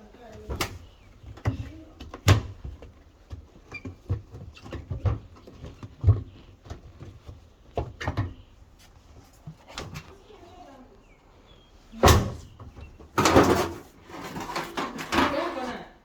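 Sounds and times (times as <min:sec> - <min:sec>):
hard parts knocking and scraping: 0:12.0 - 0:15.8.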